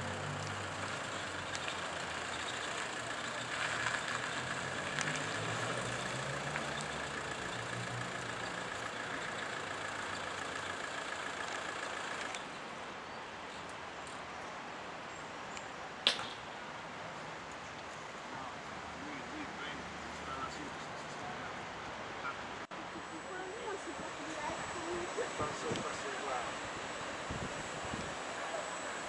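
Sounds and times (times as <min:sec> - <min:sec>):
train machinery humming: 0:00.0 - 0:12.6, 0:18.4 - 0:29.0.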